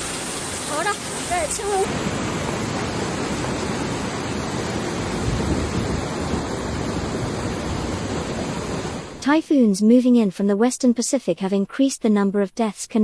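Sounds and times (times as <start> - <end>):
floodwater rushing: 0.0 - 9.2.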